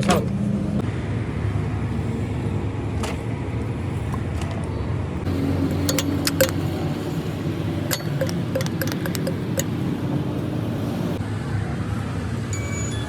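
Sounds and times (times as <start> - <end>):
vehicle engine running: 0.0 - 12.2
metallic clicks and clinks: 5.7 - 6.8, 7.9 - 9.7.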